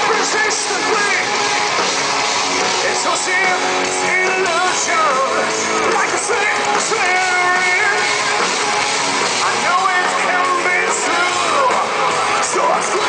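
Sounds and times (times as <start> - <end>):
heavy metal band playing: 0.0 - 13.0
sliding lead guitar line: 0.0 - 13.0.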